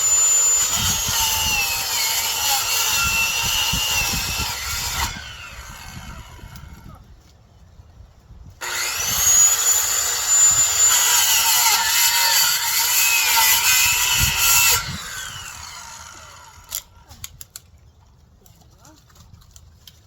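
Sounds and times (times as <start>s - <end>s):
electric power saw cutting brush: 0.0s - 6.8s, 8.6s - 17.0s.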